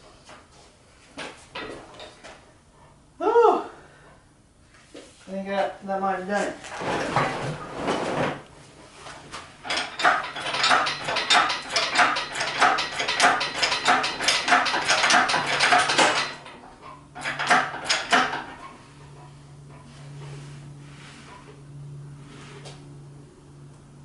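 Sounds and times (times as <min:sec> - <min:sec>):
metal clicking and clinking: 0:09.6 - 0:18.7.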